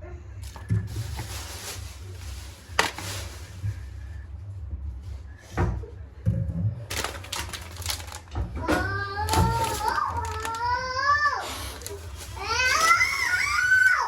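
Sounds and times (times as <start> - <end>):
low steady hum: 0.0 - 14.0
household clatter: 6.9 - 10.7.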